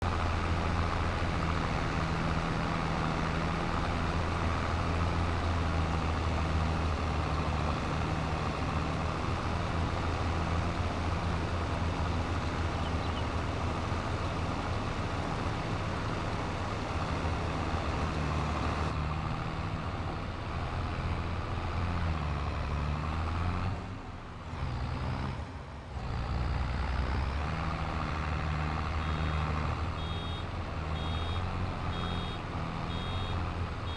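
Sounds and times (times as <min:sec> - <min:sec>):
tractor running steadily: 0:00.0 - 0:33.9
short high beeps: 0:30.0 - 0:30.4, 0:31.0 - 0:31.4, 0:32.0 - 0:33.9.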